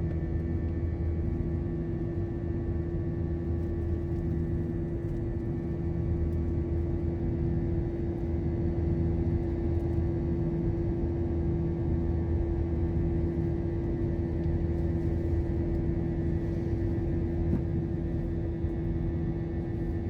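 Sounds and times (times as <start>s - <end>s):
airliner cabin rumble: 0.0s - 10.7s, 12.7s - 20.0s.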